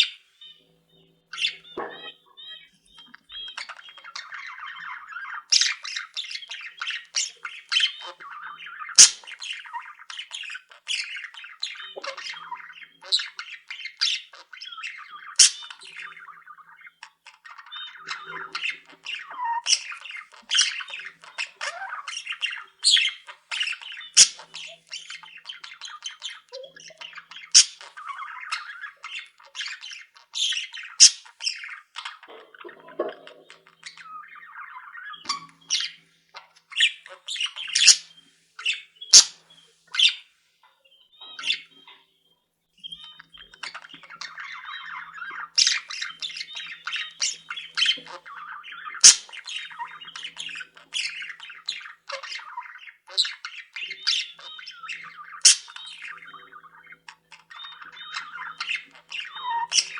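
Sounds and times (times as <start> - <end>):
budgerigars chattering and warbling: 0.0 - 42.1, 42.8 - 59.9
sharp high bird chirps: 0.0 - 59.9.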